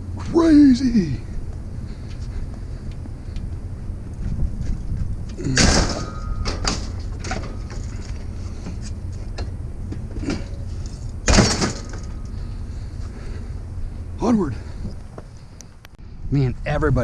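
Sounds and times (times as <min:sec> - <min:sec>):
vehicle engine idling: 0:00.0 - 0:16.2
loud metallic clunks: 0:05.4 - 0:08.0, 0:09.4 - 0:12.4.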